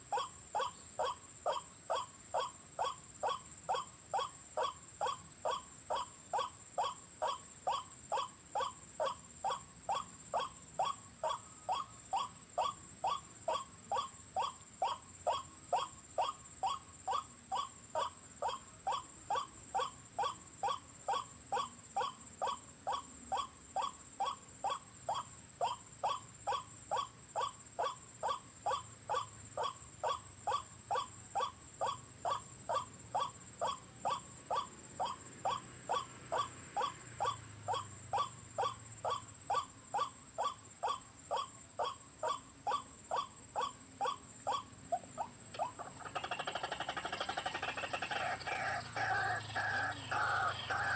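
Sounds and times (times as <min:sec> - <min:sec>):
electronic bird call repeating: 0:45.5 - 0:50.9.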